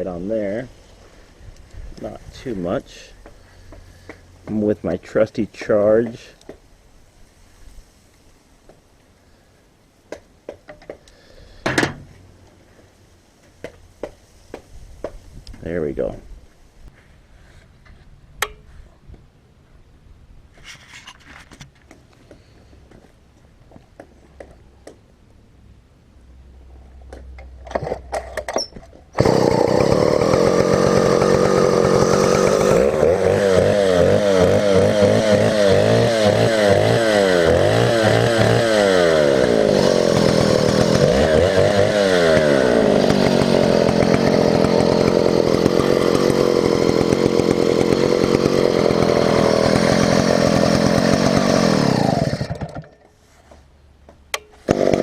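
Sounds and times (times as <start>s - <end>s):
chainsaw engine revving: 29.2s - 53.0s, 54.6s - 55.0s.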